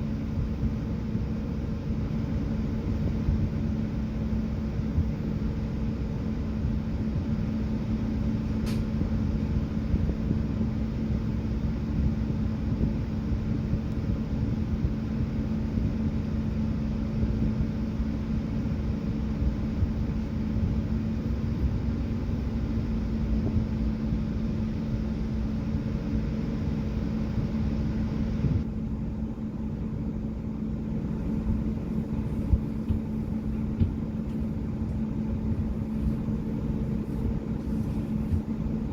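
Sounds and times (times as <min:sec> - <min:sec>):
bus engine and road noise: 0:00.0 - 0:38.9
low hum: 0:00.0 - 0:38.9.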